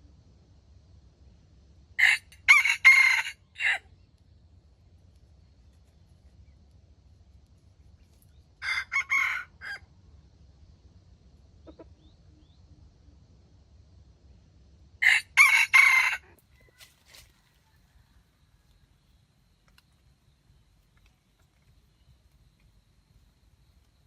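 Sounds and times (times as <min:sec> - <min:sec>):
rooster crowing: 0:02.0 - 0:03.9, 0:08.6 - 0:09.9, 0:15.0 - 0:18.9.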